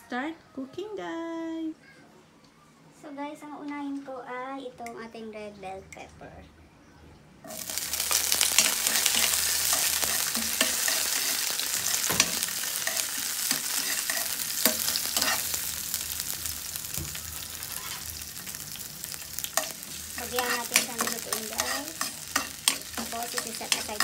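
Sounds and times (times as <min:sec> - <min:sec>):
pepper sizzling in hot oil: 0:07.5 - 0:24.0
utensil scraping a pan: 0:08.5 - 0:15.6, 0:17.6 - 0:18.2, 0:19.3 - 0:24.0.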